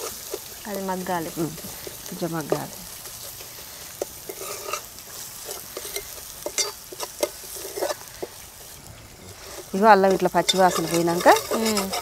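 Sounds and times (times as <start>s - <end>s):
food sizzling in oil: 0.0s - 12.0s
ladle scraping metal pot: 3.4s - 8.0s, 9.2s - 12.0s.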